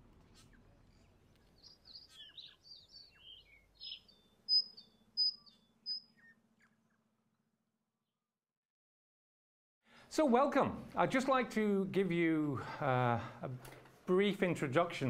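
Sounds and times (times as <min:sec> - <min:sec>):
birds chirping and twittering: 0:00.1 - 0:07.2.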